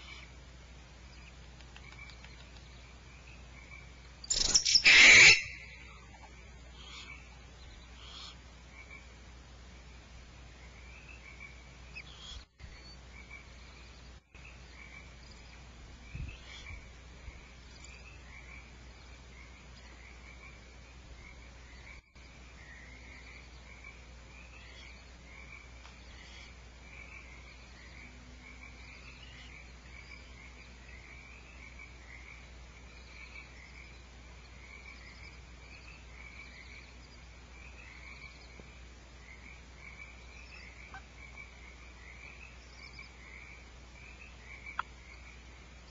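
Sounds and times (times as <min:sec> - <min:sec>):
frogs calling: 0:02.8 - 0:09.2, 0:10.6 - 0:45.7.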